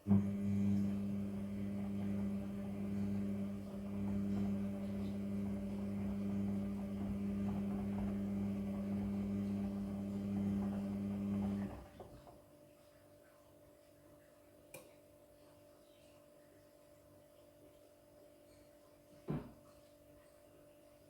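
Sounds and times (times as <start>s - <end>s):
washing machine humming: 0.0s - 12.6s.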